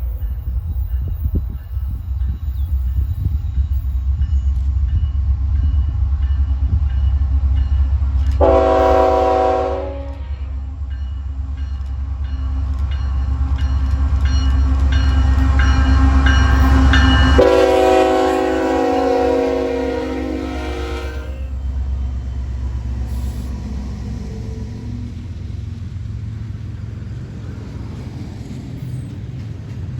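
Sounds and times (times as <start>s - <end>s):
diesel locomotive rumbling: 0.0s - 29.9s
multi-tone air horn: 8.4s - 10.5s, 17.4s - 21.6s.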